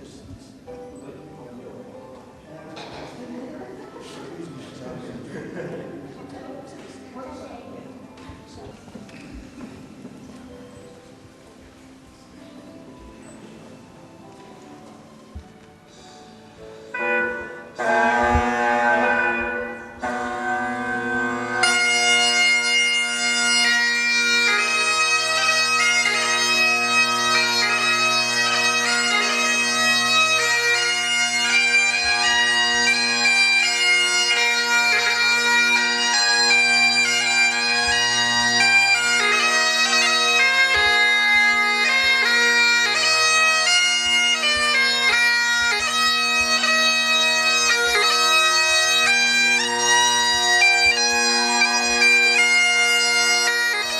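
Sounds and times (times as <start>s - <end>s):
bagpipe drones: 15.9s - 53.9s
bagpipe chanter melody: 16.8s - 53.9s.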